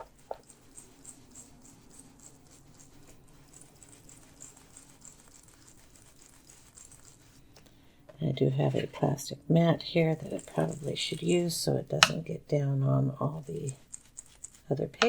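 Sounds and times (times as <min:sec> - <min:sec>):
blending tool scratching paper: 0:00.0 - 0:07.4, 0:10.0 - 0:11.6, 0:13.3 - 0:15.0.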